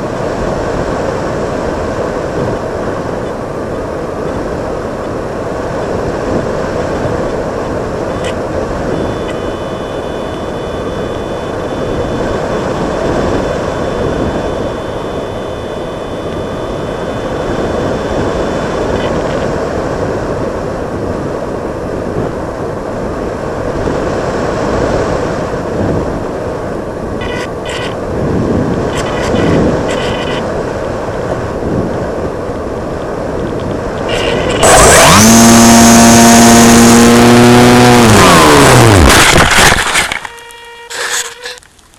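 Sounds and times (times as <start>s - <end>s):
loud droning buzz: 0.0s - 30.5s, 31.3s - 41.7s.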